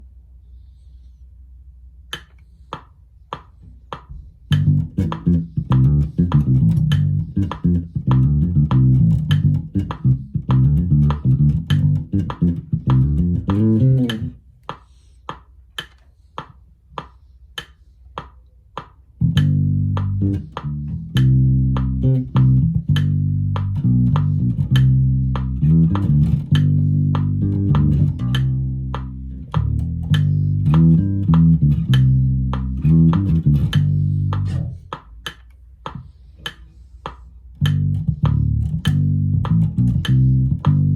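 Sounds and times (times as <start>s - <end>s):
drum machine pattern: 2.1s - 40.9s
electric bass guitar bassline: 4.4s - 14.4s, 19.2s - 35.0s, 37.5s - 40.9s.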